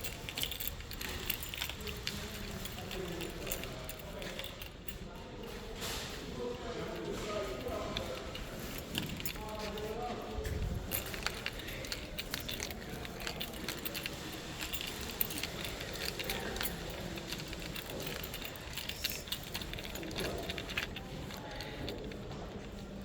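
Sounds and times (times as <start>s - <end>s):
murmur of voices: 0.0s - 23.0s
small metal objects clinking: 7.0s - 22.2s.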